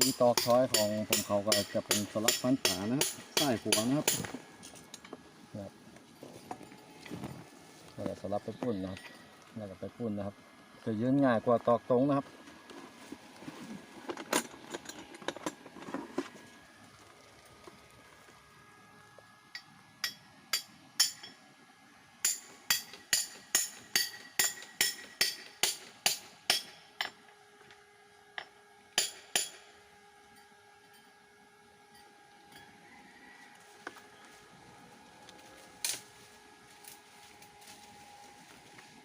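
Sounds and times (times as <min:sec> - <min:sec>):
hammer striking pegs into tree: 0:00.0 - 0:04.4, 0:22.2 - 0:27.2, 0:29.0 - 0:29.6.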